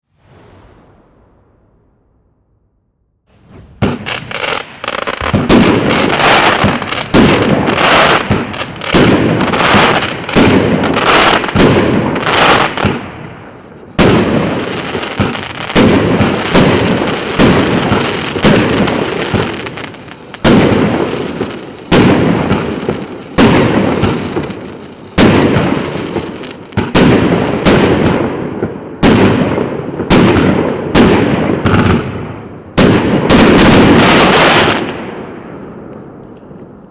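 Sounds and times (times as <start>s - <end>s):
firework shots banging: 3.3s - 32.2s.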